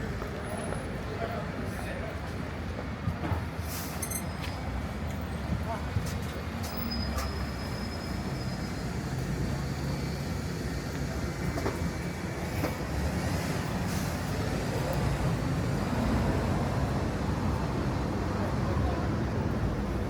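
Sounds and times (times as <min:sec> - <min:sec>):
heavy vehicle rumbling past: 0:07.6 - 0:20.0.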